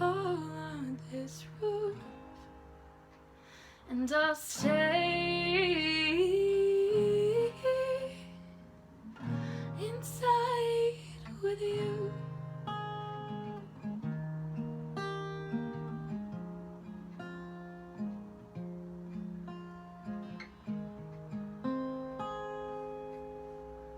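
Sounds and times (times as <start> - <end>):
woman singing: 0.0 - 2.4, 3.9 - 8.5, 9.6 - 12.4
acoustic guitar: 0.0 - 23.9.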